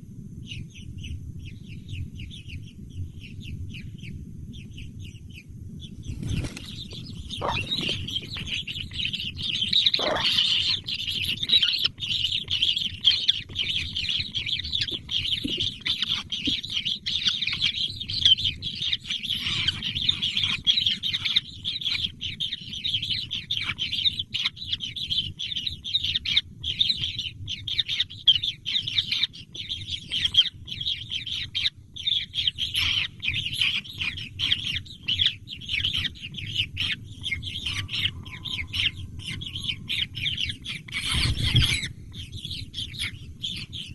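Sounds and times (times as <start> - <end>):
steady low rumble: 0.0 - 43.9
baby birds chirping: 0.4 - 43.9.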